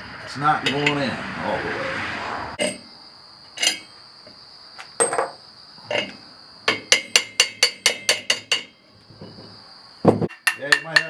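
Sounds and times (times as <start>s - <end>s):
hammer tapping on metal: 6.7s - 8.7s, 10.3s - 11.0s.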